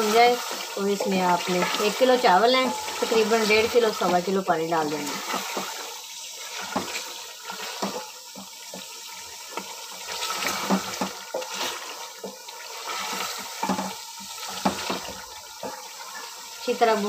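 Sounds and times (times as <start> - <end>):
food sizzling in hot oil: 0.0 - 17.0
wooden spoon scraping a pot: 0.4 - 4.3, 5.0 - 17.0.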